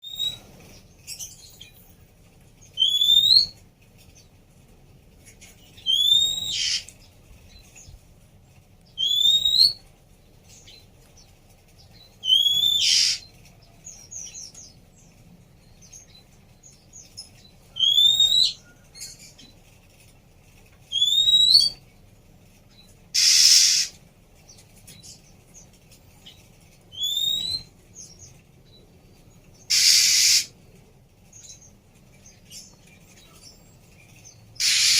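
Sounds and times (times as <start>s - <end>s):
bird upslurred whistle: 5.8s - 6.8s, 17.8s - 18.6s, 20.9s - 21.8s, 23.2s - 23.9s, 27.0s - 27.7s, 29.7s - 30.5s, 34.6s - 34.9s
bird harsh rasping call: 5.8s - 6.9s, 12.2s - 13.3s, 23.1s - 24.0s, 29.6s - 30.6s, 34.6s - 34.9s.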